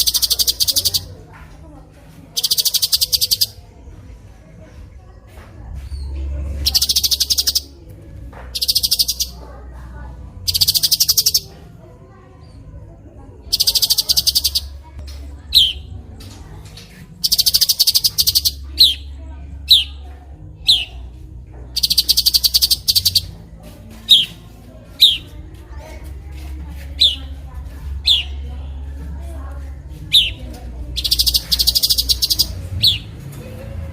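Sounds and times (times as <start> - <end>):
buzzy bird trills: 0.0 - 1.1, 2.4 - 3.6, 6.6 - 7.7, 8.6 - 9.4, 10.5 - 11.5, 13.5 - 14.8, 15.5 - 16.0, 17.2 - 20.0, 21.8 - 23.4, 24.1 - 24.4, 25.0 - 25.3, 26.9 - 27.3, 30.1 - 33.1.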